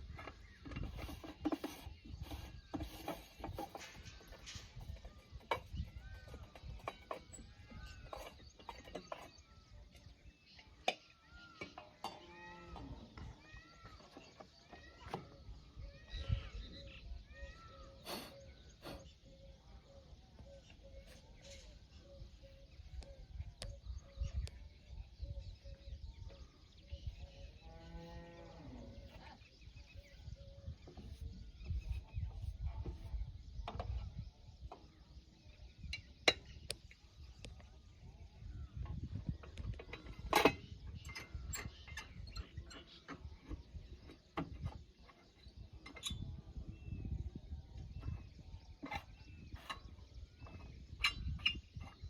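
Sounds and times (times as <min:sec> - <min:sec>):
farm animal call: 0:12.0 - 0:14.1.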